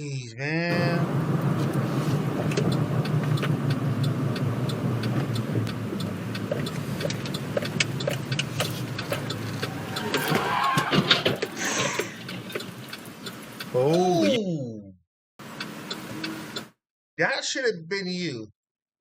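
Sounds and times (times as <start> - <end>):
car engine droning: 0.6 - 14.1, 15.4 - 16.8
road noise: 0.6 - 14.4, 15.4 - 16.8
light ticks: 1.6 - 10.8.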